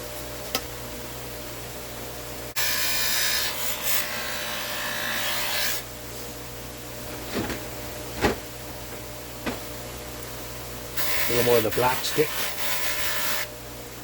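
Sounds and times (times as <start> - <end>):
polishing wheel humming: 3.3 - 13.5.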